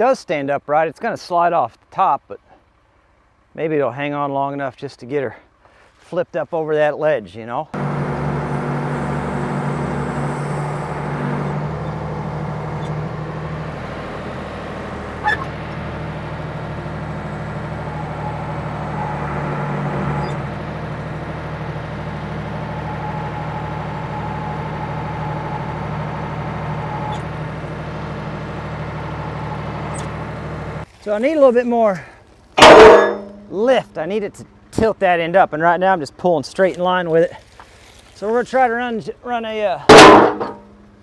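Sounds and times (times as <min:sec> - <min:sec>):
backhoe engine running: 0:07.7 - 0:36.3, 0:39.5 - 0:41.0
sharp metal clank: 0:32.6 - 0:33.5, 0:39.9 - 0:40.7.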